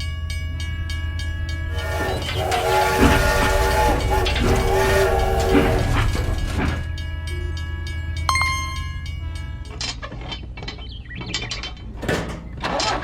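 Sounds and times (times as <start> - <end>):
machine humming and whining: 1.4 - 9.6.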